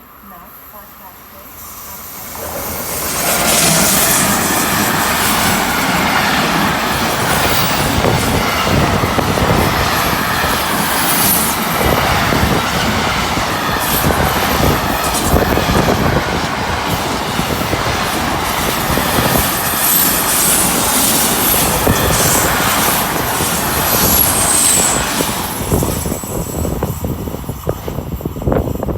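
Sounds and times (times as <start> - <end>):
freight train rushing past: 0.0 - 28.9
wind buffeting microphone: 2.3 - 28.9
train wheels clattering: 2.5 - 28.9.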